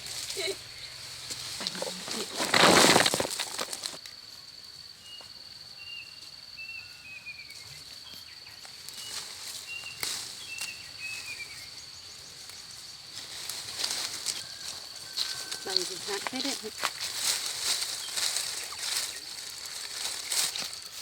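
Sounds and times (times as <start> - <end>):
birds chirping: 17.6 - 20.8.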